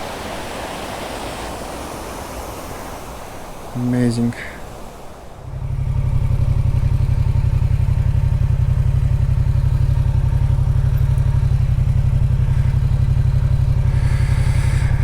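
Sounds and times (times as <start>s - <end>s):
motorcycle engine running: 5.4s - 15.0s.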